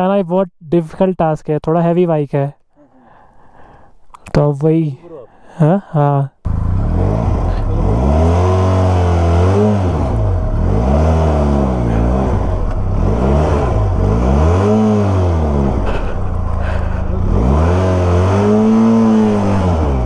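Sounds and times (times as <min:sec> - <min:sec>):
motorcycle engine revving: 0:06.5 - 0:20.0.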